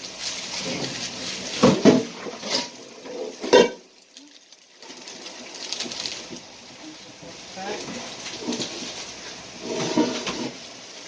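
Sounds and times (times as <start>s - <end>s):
utensils clinking on frying pan: 1.7s - 3.8s.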